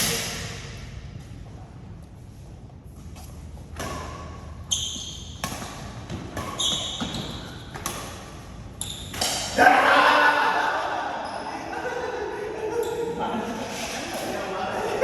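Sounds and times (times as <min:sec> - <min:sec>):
badminton racket hitting shuttlecock: 0:05.2 - 0:09.6.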